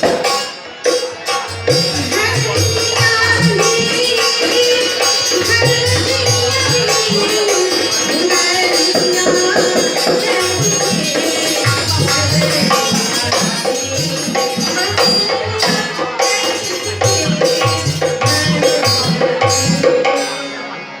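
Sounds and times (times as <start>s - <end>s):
folk drum rhythm: 0.0s - 20.3s.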